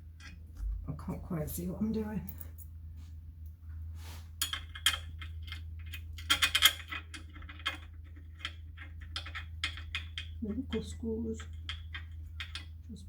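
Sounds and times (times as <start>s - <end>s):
steady low hum: 0.0s - 13.0s
metal bolts clinking: 4.4s - 12.8s.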